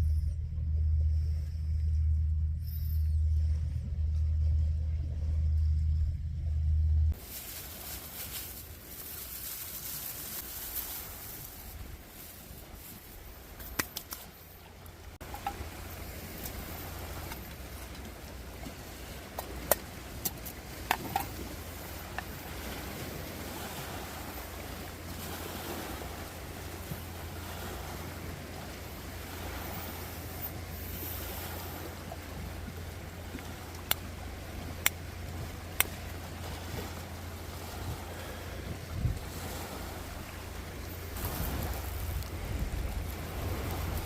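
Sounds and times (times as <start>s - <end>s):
wind rumbling on microphone: 0.0s - 44.0s
sharp snaps: 13.6s - 14.3s.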